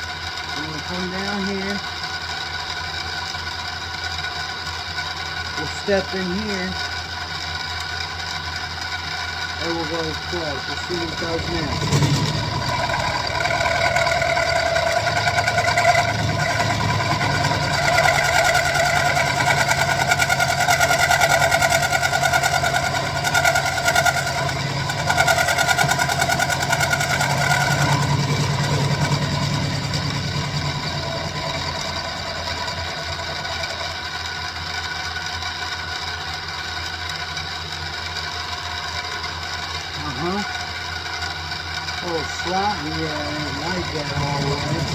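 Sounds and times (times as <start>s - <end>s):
milling machine motor whine: 0.0s - 7.0s, 8.9s - 35.4s, 41.8s - 44.9s
end mill cutting steel: 9.6s - 34.8s, 42.1s - 44.9s.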